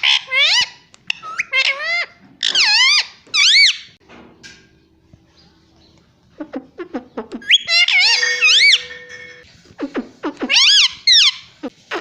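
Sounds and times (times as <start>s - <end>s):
parrot squeaky calls: 0.0s - 4.0s, 6.4s - 12.0s.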